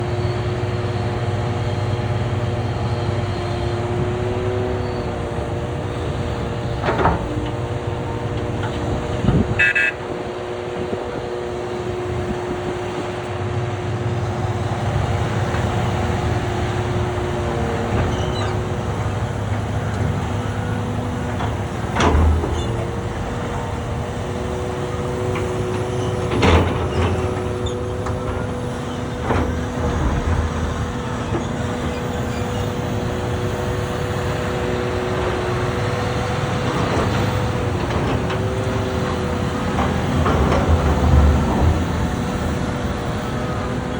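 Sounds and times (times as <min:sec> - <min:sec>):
heavy diesel engines running: 0:00.0 - 0:43.9.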